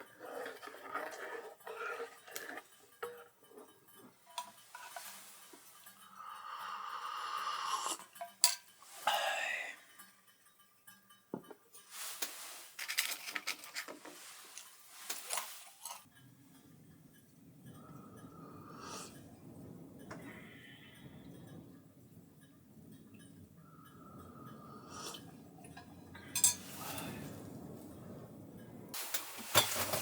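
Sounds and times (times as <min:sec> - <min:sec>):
dishes and utensils clinking: 0:00.0 - 0:07.2, 0:07.8 - 0:09.8, 0:11.4 - 0:16.1, 0:24.9 - 0:27.4, 0:29.0 - 0:30.0.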